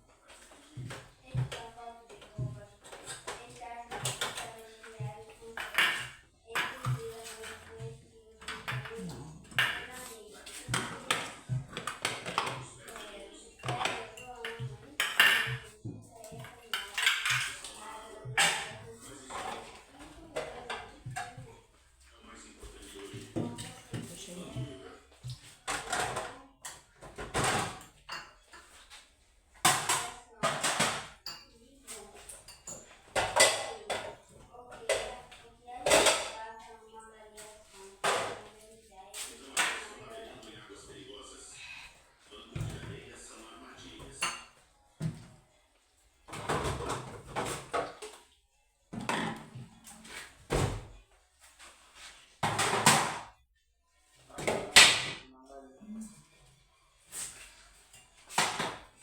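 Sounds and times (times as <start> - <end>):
household items clattering: 0.1 - 21.6, 22.6 - 36.5, 37.3 - 40.2, 46.3 - 48.3, 48.9 - 50.9, 51.5 - 53.4, 57.1 - 59.0.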